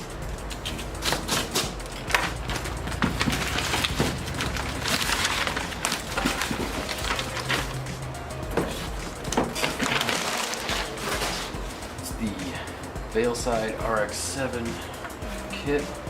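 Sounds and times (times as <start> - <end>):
paper and plastic packaging rustling: 0.5 - 12.4.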